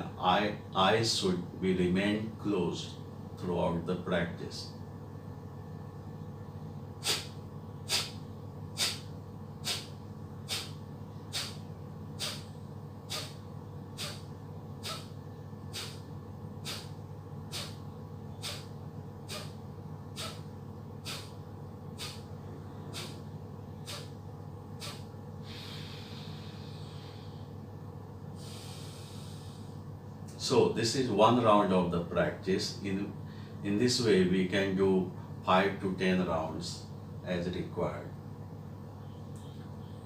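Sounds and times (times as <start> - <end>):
sharp nasal exhalations: 7.0 - 13.4, 14.0 - 17.8, 18.4 - 21.4, 22.0 - 23.2, 23.8 - 24.2, 24.8 - 27.5, 28.4 - 29.8
deep breath: 12.2 - 12.5, 13.1 - 13.4, 14.0 - 17.8, 18.4 - 18.7, 20.2 - 21.4, 22.0 - 23.2, 24.8 - 27.6, 28.3 - 29.9, 33.2 - 33.6.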